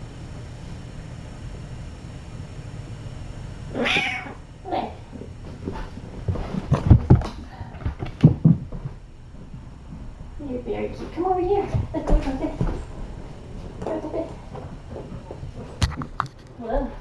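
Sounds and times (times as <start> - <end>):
cat meowing: 3.8 - 4.4
low thumps and knocks: 5.1 - 17.0.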